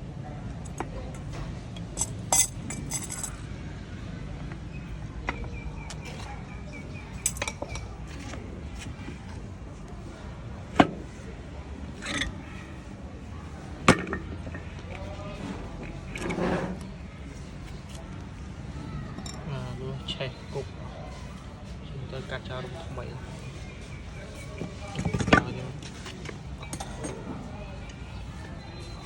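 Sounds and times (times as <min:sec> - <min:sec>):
metal tools clinking: 0:00.7 - 0:03.5, 0:07.2 - 0:08.2, 0:12.0 - 0:12.4, 0:19.1 - 0:19.5, 0:24.3 - 0:28.0.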